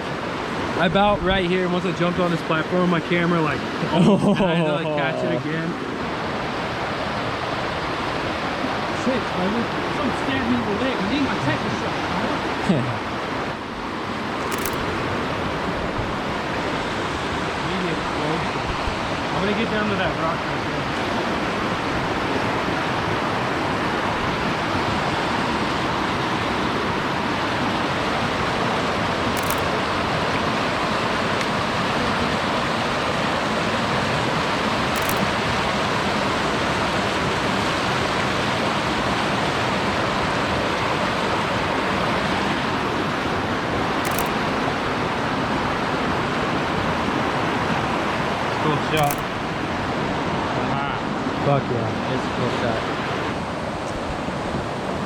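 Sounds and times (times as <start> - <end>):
faint short clicks: 14.4 - 15.1, 29.3 - 29.9, 34.9 - 35.5, 44.0 - 44.6, 49.0 - 49.4.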